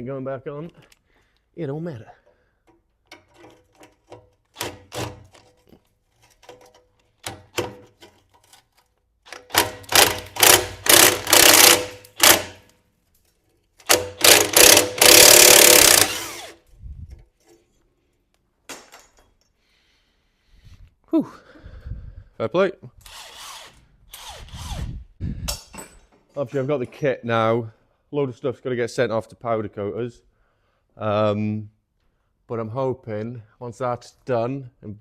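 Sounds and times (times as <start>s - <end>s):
impact wrench hammering: 9.3s - 12.7s, 13.8s - 16.6s.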